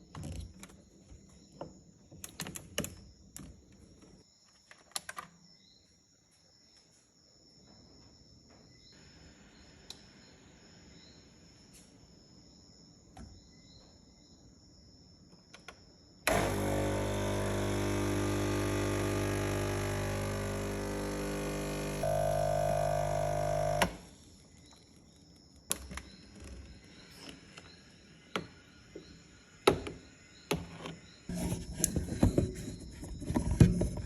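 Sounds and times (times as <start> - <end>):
espresso machine pump buzzing: 16.3 - 24.1.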